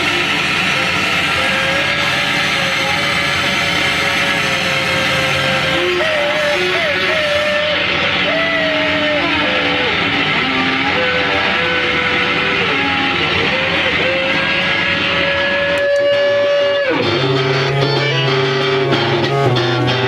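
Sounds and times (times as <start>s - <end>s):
dense wall of noise: 0.0s - 20.0s
sustained sliding tone: 0.0s - 20.0s.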